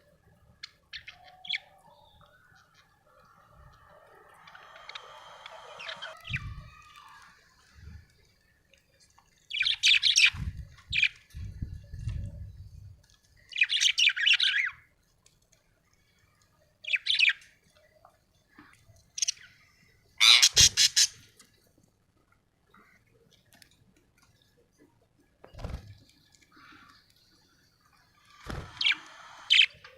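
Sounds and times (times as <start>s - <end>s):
budgerigar chirping and squawking: 20.2s - 21.2s.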